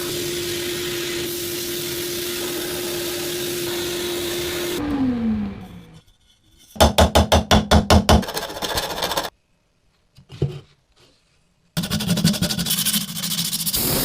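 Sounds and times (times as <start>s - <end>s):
electric coffee grinder: 0.0s - 4.9s, 13.8s - 14.0s.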